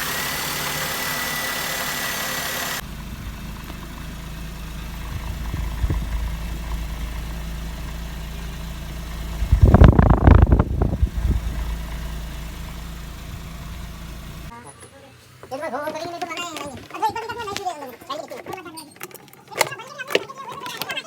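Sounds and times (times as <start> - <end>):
loud irregular rumbling: 0.0 - 14.5
car engine idling: 0.0 - 17.0.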